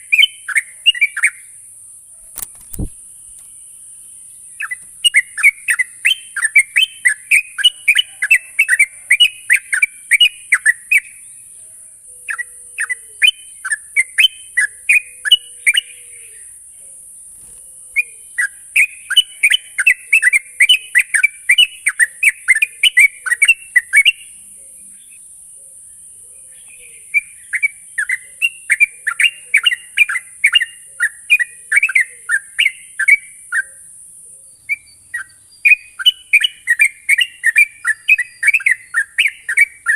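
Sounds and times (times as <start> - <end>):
bulbul singing: 0.0 - 39.9
steady high hiss: 1.4 - 6.2.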